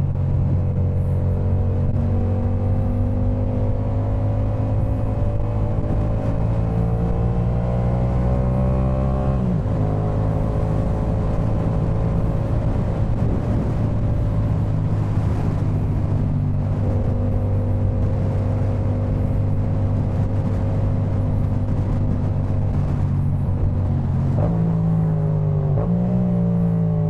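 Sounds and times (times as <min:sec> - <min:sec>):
motorcycle engine accelerating: 0:00.0 - 0:27.0.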